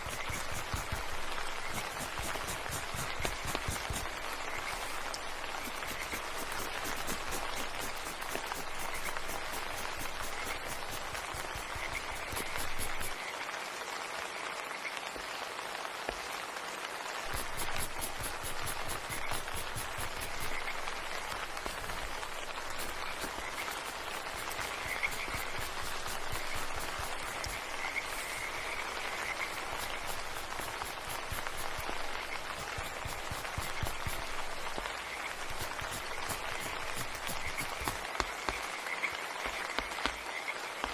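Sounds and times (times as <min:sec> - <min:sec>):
steady hiss: 0:00.0 - 0:13.2, 0:17.2 - 0:40.9
frogs croaking: 0:07.5 - 0:13.3, 0:19.1 - 0:40.8.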